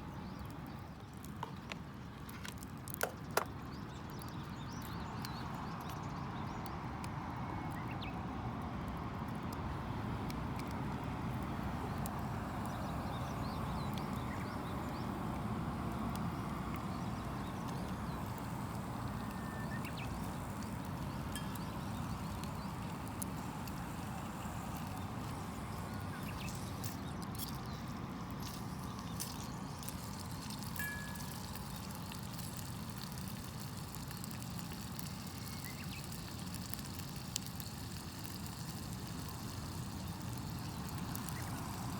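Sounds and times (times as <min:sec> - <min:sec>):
outdoor background hiss: 0:07.2 - 0:41.9
campfire crackling: 0:08.6 - 0:41.9.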